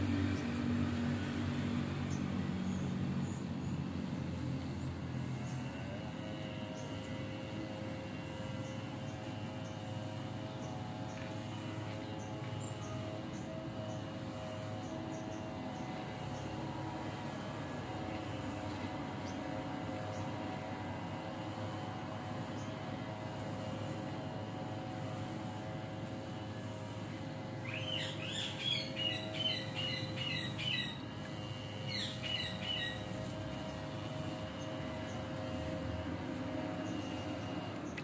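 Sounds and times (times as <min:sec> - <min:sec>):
steady hum: 0:00.0 - 0:38.0
bird chirping: 0:27.6 - 0:31.0, 0:31.9 - 0:33.0.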